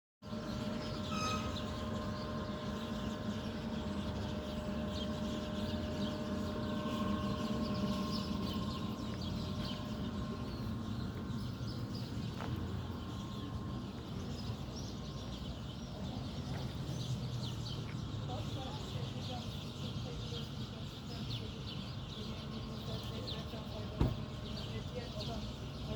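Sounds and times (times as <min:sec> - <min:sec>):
steady low hum: 0:00.2 - 0:19.0
small birds chirping: 0:00.3 - 0:25.9.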